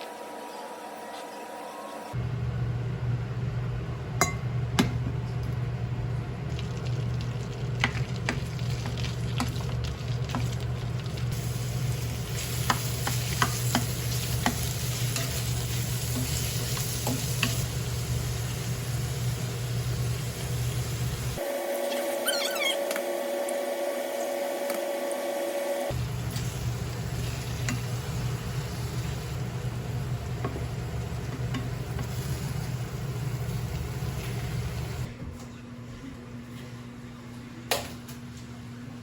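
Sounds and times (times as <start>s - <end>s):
food sizzling in a pot: 8.4s - 35.1s.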